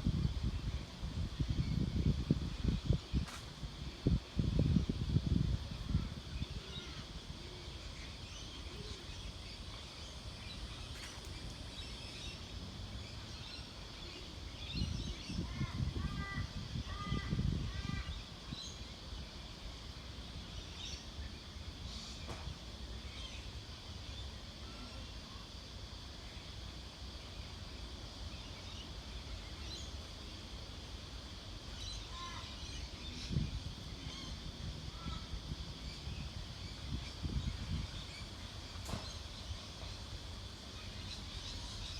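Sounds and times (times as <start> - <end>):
wind rumbling on microphone: 0.0 - 12.0, 14.3 - 19.4, 32.2 - 40.0
small birds chirping: 31.3 - 41.9.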